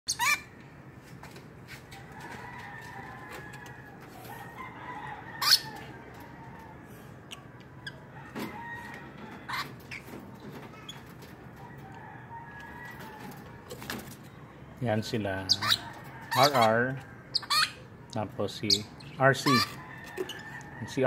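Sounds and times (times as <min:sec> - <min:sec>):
lovebirds shrill chirps: 0:00.1 - 0:00.6, 0:05.4 - 0:05.8, 0:15.4 - 0:17.9, 0:18.6 - 0:20.8.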